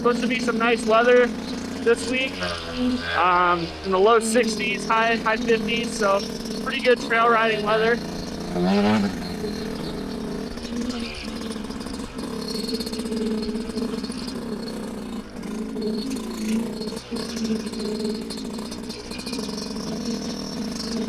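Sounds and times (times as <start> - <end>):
dirt bike engine running: 0.0 - 21.0.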